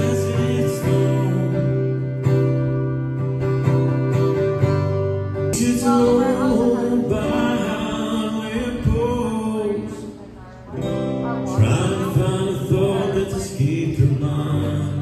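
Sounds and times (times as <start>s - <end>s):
person singing: 0.0s - 2.2s, 5.6s - 15.0s
strummed acoustic guitar: 0.0s - 15.0s.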